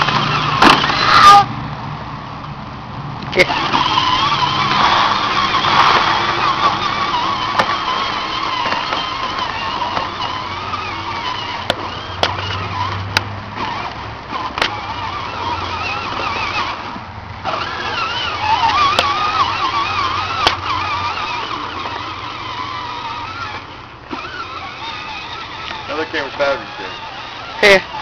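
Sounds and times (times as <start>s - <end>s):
toy tractor motor whining: 0.0s - 1.5s, 3.2s - 28.0s
sharp clicks: 18.5s - 19.2s, 20.3s - 20.7s.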